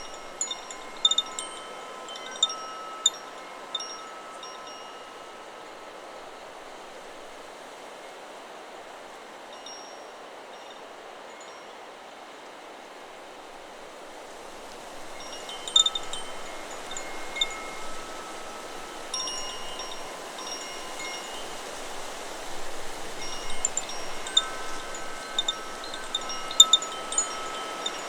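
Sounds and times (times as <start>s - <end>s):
wind chime ringing: 0.0s - 6.4s, 15.0s - 28.0s
steady wind noise: 13.0s - 28.0s.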